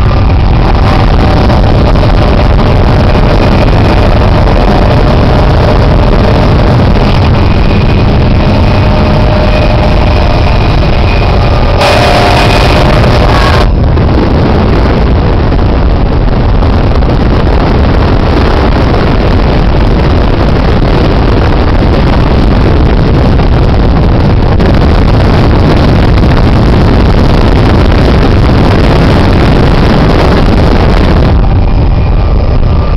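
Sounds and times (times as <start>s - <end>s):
short higher tone: 0.0s - 13.8s
helicopter engine and rotor noise: 0.0s - 32.9s.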